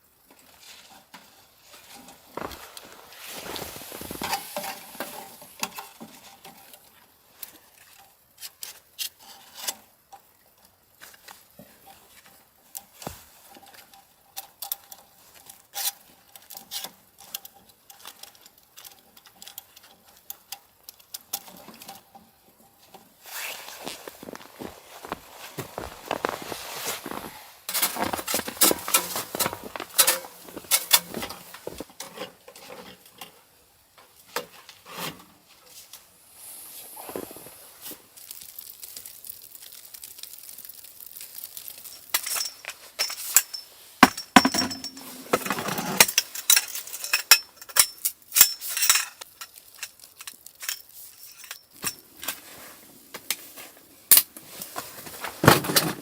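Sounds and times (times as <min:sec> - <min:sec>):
clinks and knocks: 0:27.7 - 0:33.3, 0:41.8 - 0:52.0.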